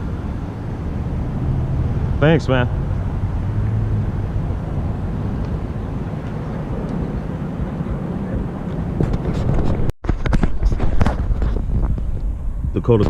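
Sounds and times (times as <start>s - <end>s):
distant vehicle engine rumble: 0.0s - 9.9s.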